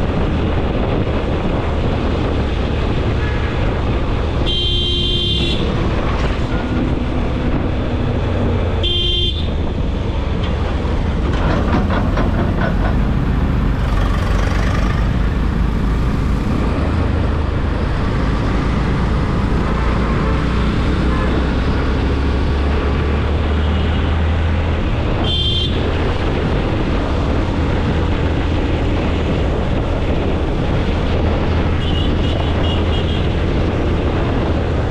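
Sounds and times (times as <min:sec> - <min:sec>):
engine and road rumble: 0:00.0 - 0:34.9
wind: 0:00.0 - 0:34.9
vehicle horn toots: 0:04.4 - 0:05.8, 0:08.8 - 0:09.6, 0:25.2 - 0:25.8.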